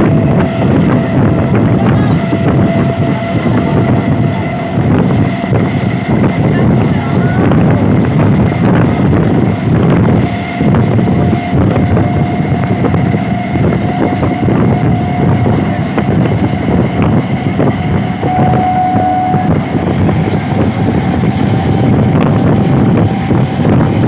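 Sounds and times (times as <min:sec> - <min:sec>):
train wheels rumbling on rails: 0:00.0 - 0:24.0
thin steady tone: 0:18.2 - 0:19.8.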